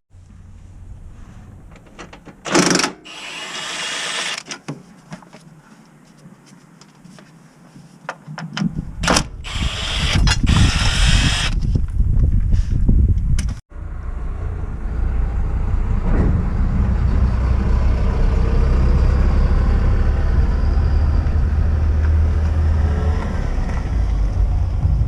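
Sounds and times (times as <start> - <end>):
power tool bursts: 2.5 - 4.5, 9.4 - 11.6
low rumble: 8.9 - 25.0.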